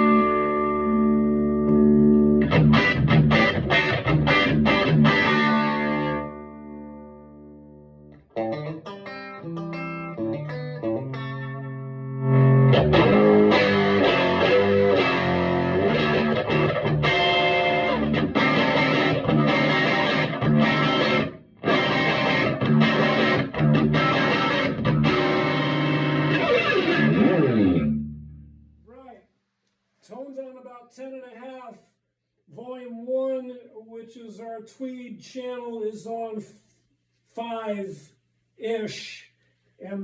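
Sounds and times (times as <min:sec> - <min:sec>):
electric guitar playing: 0:00.0 - 0:28.6.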